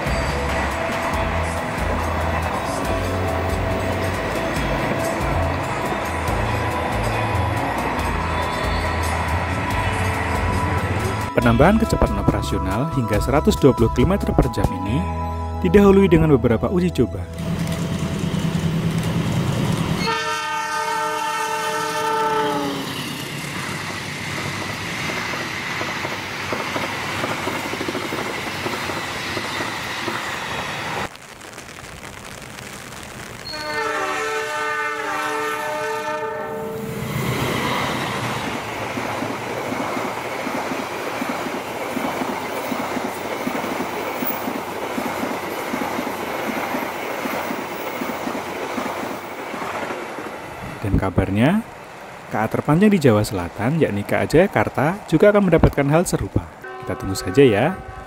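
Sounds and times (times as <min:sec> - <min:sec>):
locomotive horn: 0:20.0 - 0:22.8, 0:33.4 - 0:37.1, 0:56.6 - 0:58.0
train wheels clattering on rails: 0:23.1 - 0:30.5, 0:37.2 - 0:50.4.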